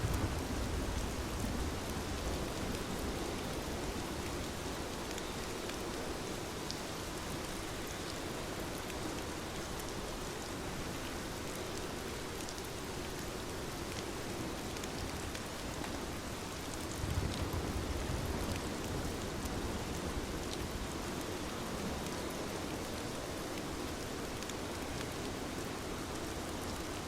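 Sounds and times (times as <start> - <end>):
distant thunder rumble: 0.0 - 2.7
heavy rain falling: 0.0 - 8.7, 9.3 - 27.0.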